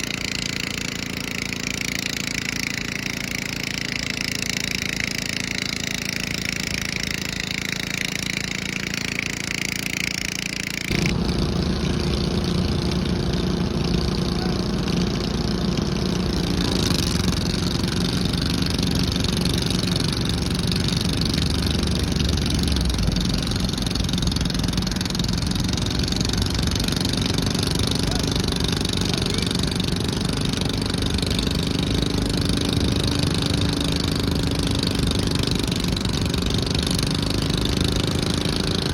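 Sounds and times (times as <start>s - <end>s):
tractor engine running: 0.0s - 38.9s
deeper louder engine note: 10.8s - 38.9s.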